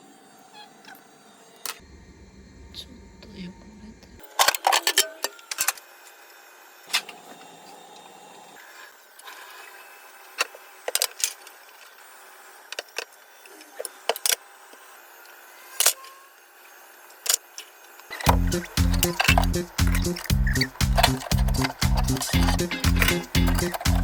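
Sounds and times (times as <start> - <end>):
hard objects clinking and knocking: 18.2 - 24.0.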